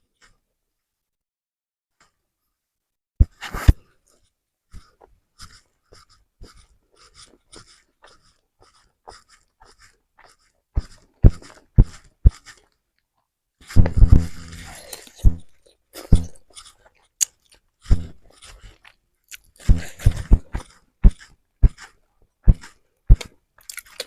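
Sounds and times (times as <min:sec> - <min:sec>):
wet mouth chewing clicks: 0:04.9 - 0:12.8, 0:13.8 - 0:24.0
low thumps: 0:13.8 - 0:14.6.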